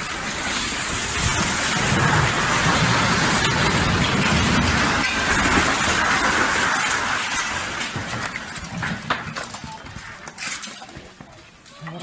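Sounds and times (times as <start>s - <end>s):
floodwater rushing: 0.0s - 8.8s.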